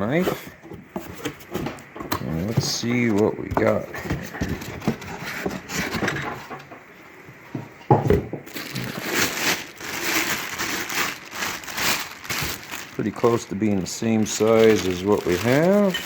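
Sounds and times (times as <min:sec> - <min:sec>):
cardboard rustling and tearing: 0:02.3 - 0:06.2, 0:08.5 - 0:16.0.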